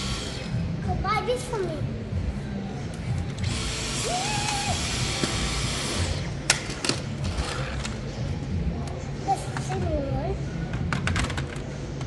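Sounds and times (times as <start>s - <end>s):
small appliance motor whirring: 3.4s - 6.3s.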